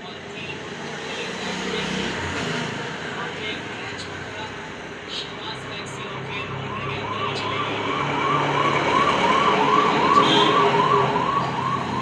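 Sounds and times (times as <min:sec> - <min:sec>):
emergency siren yelping: 0:06.4 - 0:12.0.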